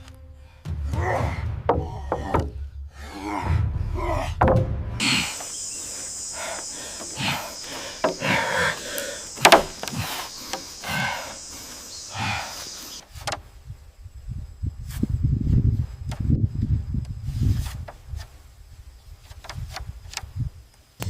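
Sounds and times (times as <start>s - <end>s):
low rumble: 0.0s - 6.9s
wooden knocks and clicks: 1.7s - 2.6s, 4.4s - 4.8s, 8.0s - 8.4s, 9.4s - 10.7s
steady high hiss: 5.0s - 15.8s
sharp crack: 7.8s - 11.0s.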